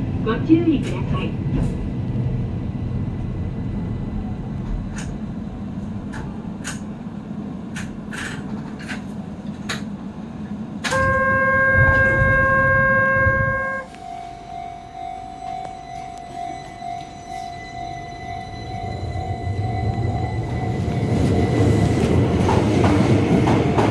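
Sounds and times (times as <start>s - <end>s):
train running rumble: 0.0s - 23.9s
loud held tone: 10.9s - 22.0s.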